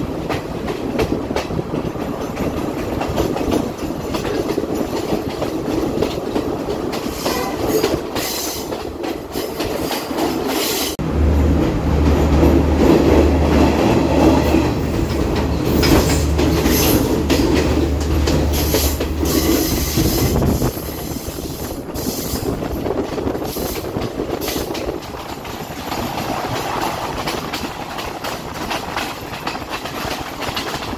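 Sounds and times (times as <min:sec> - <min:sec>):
train rumbling: 0:00.0 - 0:30.9
wheels clattering over rails: 0:11.5 - 0:20.7, 0:22.4 - 0:30.9.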